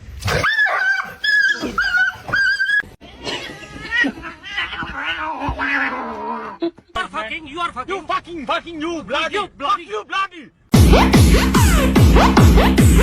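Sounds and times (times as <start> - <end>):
pet animal whining: 0.3 - 6.6.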